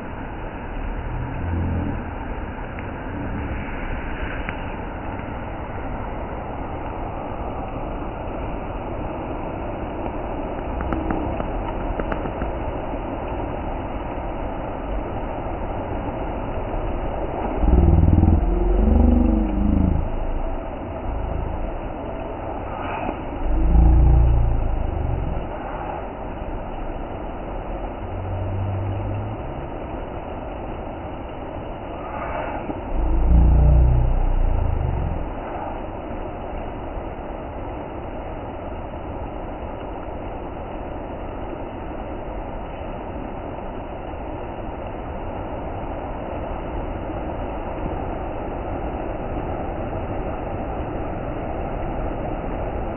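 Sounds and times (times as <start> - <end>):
low pitched rumble: 0.0 - 12.0, 16.0 - 36.8
waterfall rushing: 0.1 - 4.8, 17.2 - 35.6.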